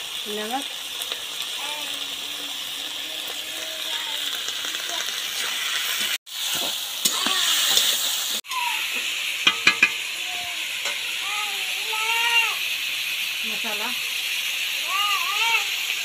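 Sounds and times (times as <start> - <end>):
skin frying in oil: 0.0 - 16.0
metal spatula clicking on pan: 9.5 - 10.1.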